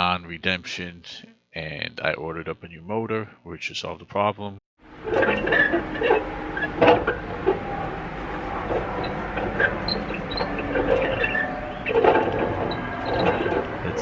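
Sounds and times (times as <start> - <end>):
fan motor grinding: 4.8 - 14.0
bearing squeaks: 4.9 - 14.0.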